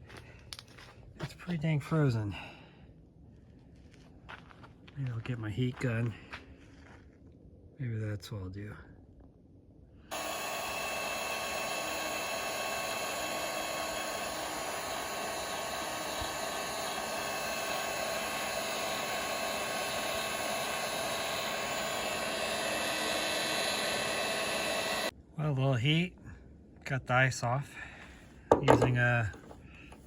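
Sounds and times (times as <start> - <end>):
heat gun fan whining: 10.1 - 25.1, 28.5 - 30.0.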